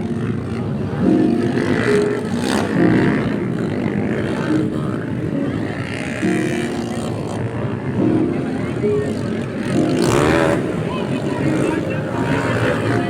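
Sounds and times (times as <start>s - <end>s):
dirt bike engines running: 0.0s - 13.0s.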